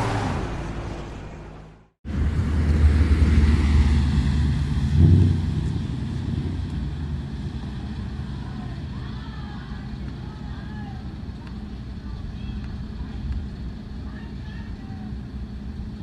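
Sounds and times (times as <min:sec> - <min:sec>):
car engine passing: 0:00.0 - 0:08.8.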